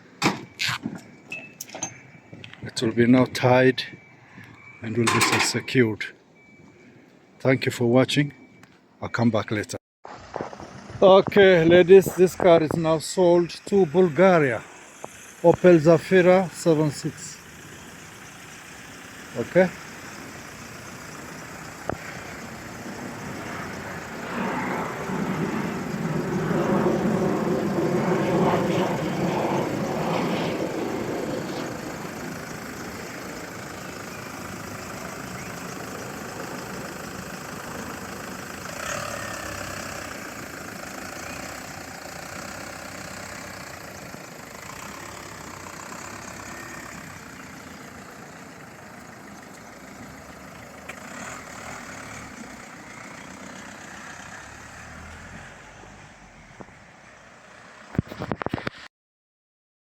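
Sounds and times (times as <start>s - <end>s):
vehicle engine running: 10.2s - 56.6s.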